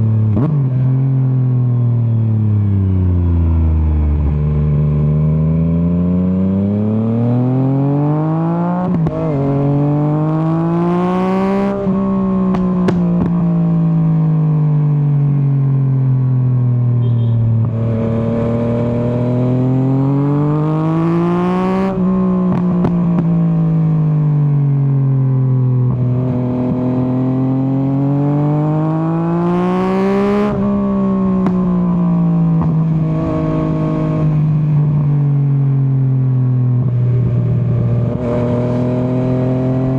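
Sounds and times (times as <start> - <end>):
motorcycle engine revving: 0.2 - 39.9
exhaust pops and crackles: 12.5 - 13.4, 22.5 - 23.4, 31.3 - 31.9.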